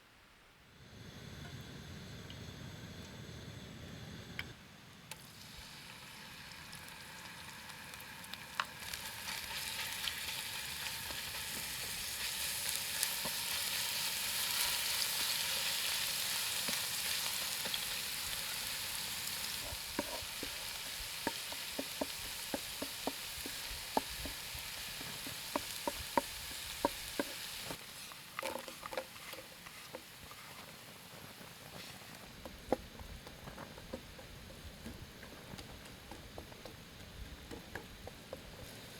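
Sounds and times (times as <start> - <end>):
food sizzling in a frying pan: 5.1 - 32.2
utensil tapping a pan: 19.6 - 27.8, 32.3 - 38.8.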